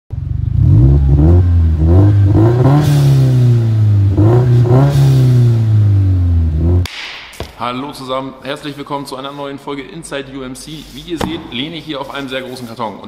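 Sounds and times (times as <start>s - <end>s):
car engine revving: 0.1s - 6.9s.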